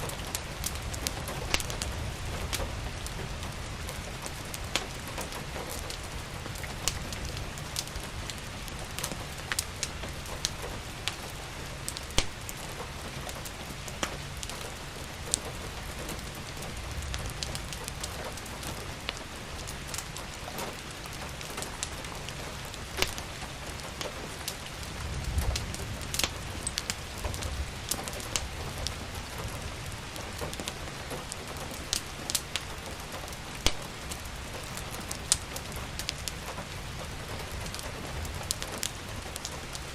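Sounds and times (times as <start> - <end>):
steady rain falling: 0.0 - 39.9
wood fire crackling: 0.0 - 39.9.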